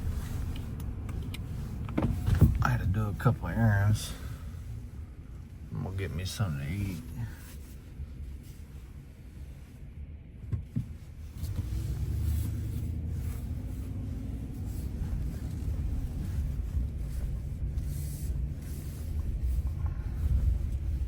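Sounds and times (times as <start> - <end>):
pickup truck engine and road rumble: 0.0 - 21.0.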